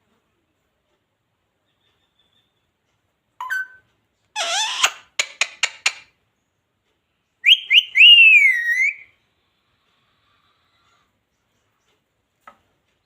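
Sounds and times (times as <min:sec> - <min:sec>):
parrot squawk: 0:04.4 - 0:06.0, 0:07.5 - 0:09.1
parrot whistle: 0:07.4 - 0:09.2.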